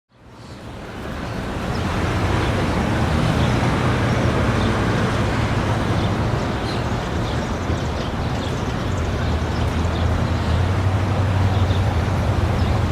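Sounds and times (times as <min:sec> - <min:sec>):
traffic noise with low rumble: 0:00.1 - 0:12.9.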